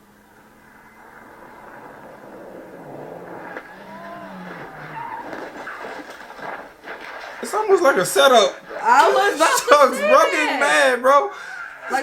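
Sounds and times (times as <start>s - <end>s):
rally car engine revving: 0.4s - 7.1s.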